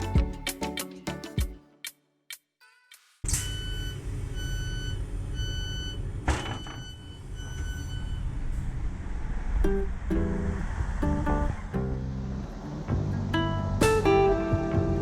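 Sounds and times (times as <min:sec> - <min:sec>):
electronic warning beep: 0:03.4 - 0:08.3
vehicle rumble: 0:03.4 - 0:15.0.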